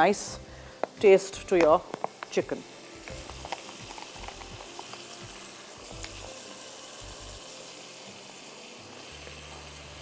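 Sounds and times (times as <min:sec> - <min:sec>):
food sizzling in a wok: 0:00.0 - 0:10.0.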